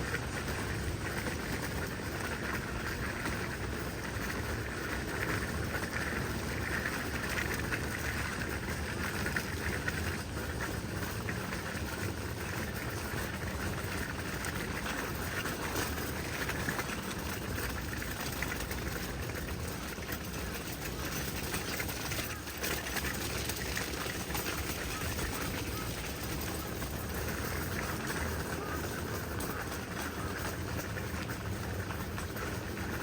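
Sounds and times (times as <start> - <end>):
wind: 0.0 - 33.0.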